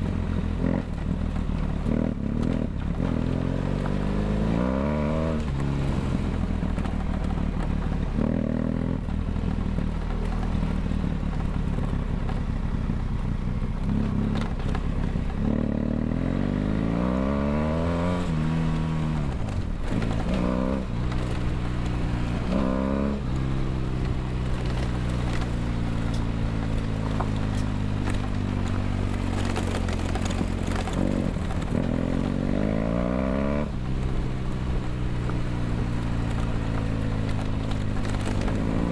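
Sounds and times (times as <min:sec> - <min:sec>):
motorcycle engine revving: 0:00.0 - 0:12.0, 0:12.7 - 0:38.9.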